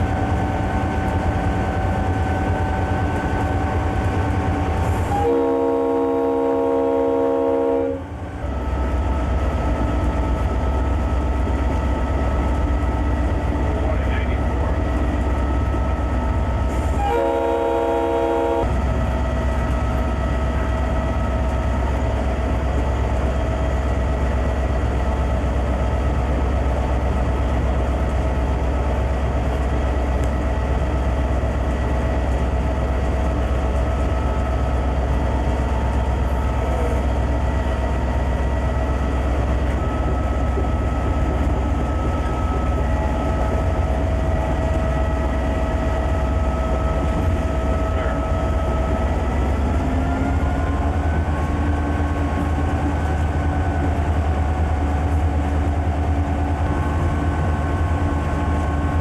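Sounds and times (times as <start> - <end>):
diesel locomotive droning: 0.0 - 59.0
locomotive air horn blast: 5.1 - 8.1, 16.9 - 18.7.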